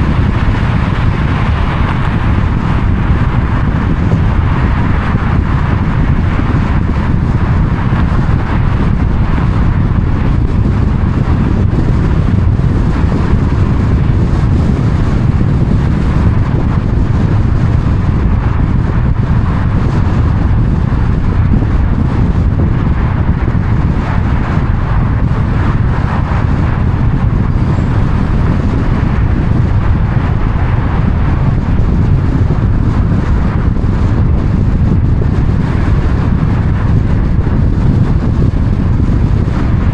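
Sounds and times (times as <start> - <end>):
car road noise: 0.0 - 39.9.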